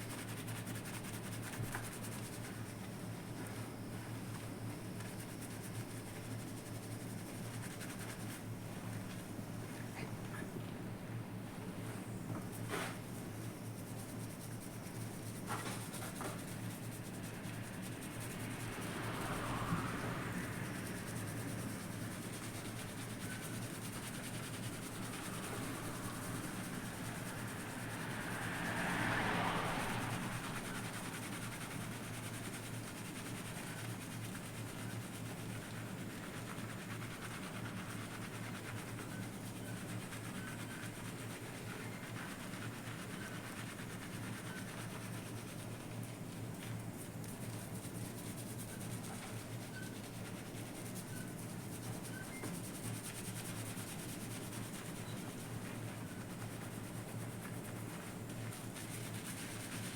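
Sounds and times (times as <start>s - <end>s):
fingers rubbing lathered wet hair: 29.6s - 45.8s.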